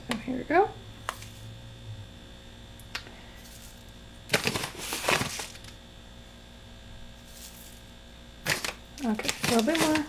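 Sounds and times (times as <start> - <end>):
seeds poured into a bowl: 3.4 - 3.9, 7.2 - 7.8.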